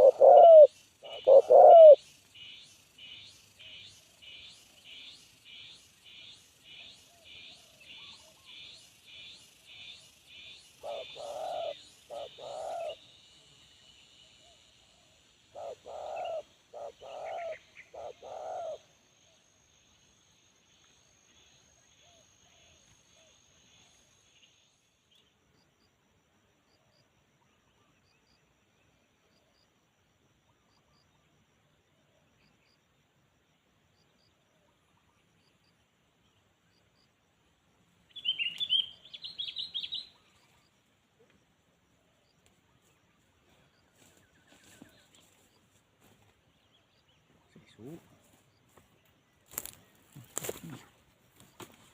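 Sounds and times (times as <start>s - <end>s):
dove cooing: 0.0s - 2.0s, 10.8s - 13.0s, 15.5s - 18.9s
faint high chirp: 38.1s - 41.3s.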